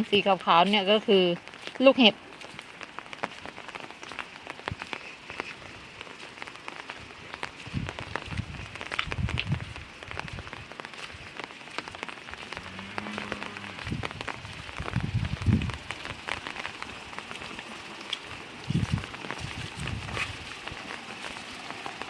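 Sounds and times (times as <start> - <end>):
hailstones ticking: 0.0 - 22.0
rain patter: 0.0 - 22.0
dull low thumps: 7.6 - 10.7, 13.7 - 15.9.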